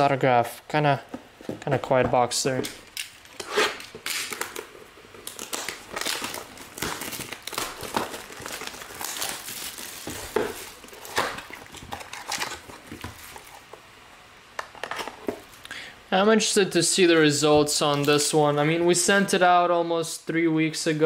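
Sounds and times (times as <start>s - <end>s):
plastic packaging crinkling: 2.8s - 13.8s.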